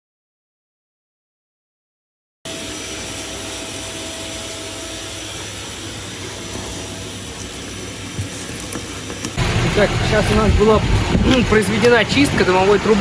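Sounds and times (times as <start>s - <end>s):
motor drone: 2.5s - 12.9s.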